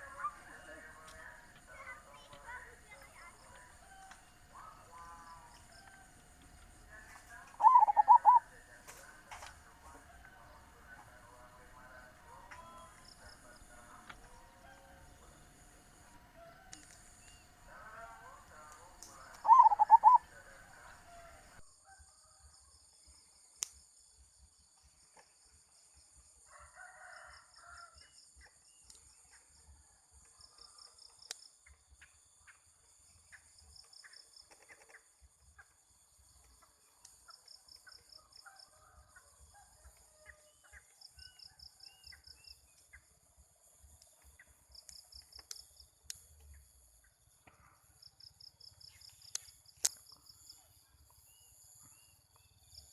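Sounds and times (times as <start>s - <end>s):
faint bird calls: 0.0s - 21.6s
high insect hum: 0.0s - 52.9s
insects chirring in rapid pulses: 0.0s - 52.9s
rooster crowing: 26.4s - 28.1s.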